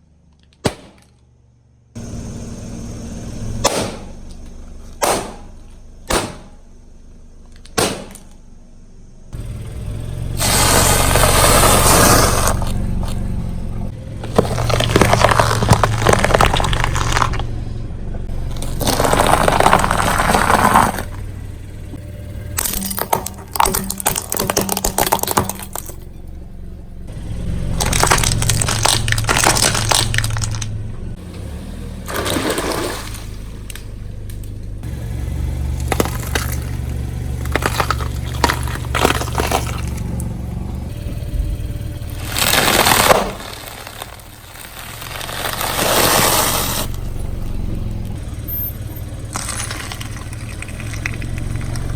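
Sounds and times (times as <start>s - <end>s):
car engine humming: 1.2s - 51.9s
tyre crushing brittle objects: 10.4s - 13.5s, 14.1s - 17.6s, 18.3s - 21.2s, 22.6s - 26.2s, 27.5s - 30.7s, 32.1s - 33.8s, 35.6s - 40.4s, 42.0s - 47.2s, 47.8s - 51.9s.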